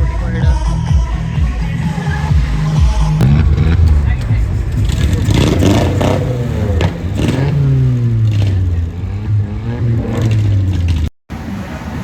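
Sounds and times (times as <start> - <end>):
car engine revving: 1.3 - 12.0
sharp cracks: 1.6 - 11.1.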